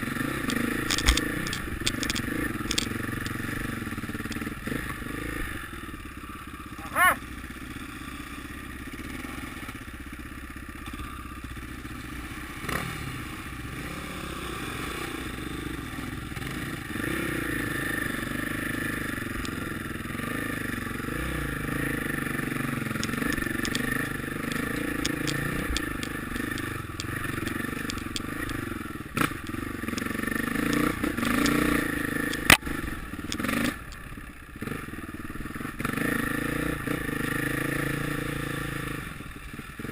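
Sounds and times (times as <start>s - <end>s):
dirt bike engines revving: 0.0s - 9.8s, 12.0s - 39.9s
sharp crack: 22.6s - 34.1s.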